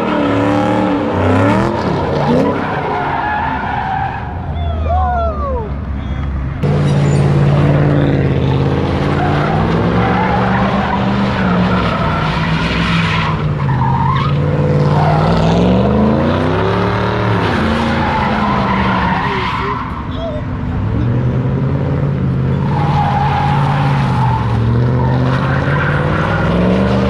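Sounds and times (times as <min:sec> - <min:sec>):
car engine revving high: 0:00.0 - 0:03.0, 0:14.3 - 0:19.8.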